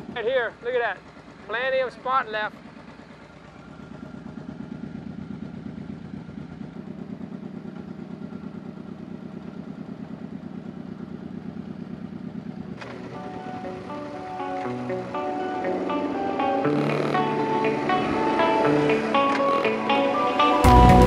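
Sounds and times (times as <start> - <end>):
motorcycle engine running: 0.0 - 21.0
music: 12.9 - 21.0.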